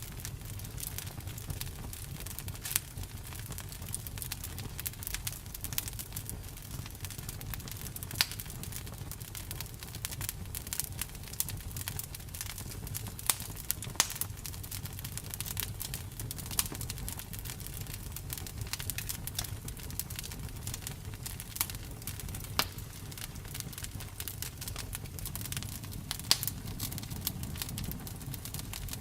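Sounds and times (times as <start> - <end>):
campfire burning: 0.0 - 29.0
fire pops and snaps: 0.0 - 29.0.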